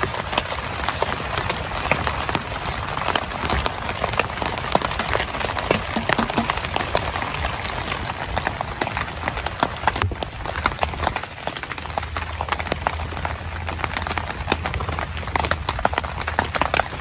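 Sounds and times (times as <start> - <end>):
heavy rain: 0.0 - 5.8, 6.4 - 17.0
raindrops striking as sharp ticks: 5.0 - 17.0.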